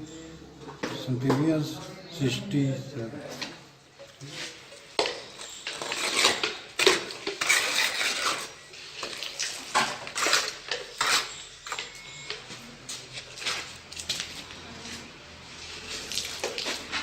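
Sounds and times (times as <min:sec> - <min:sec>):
metal trowel scraping and clinking: 0:04.2 - 0:12.3.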